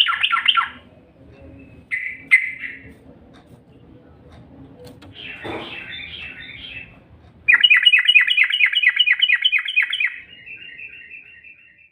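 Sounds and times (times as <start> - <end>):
bird calling with fast trill: 0.0 - 0.8, 1.7 - 2.8, 5.1 - 11.9.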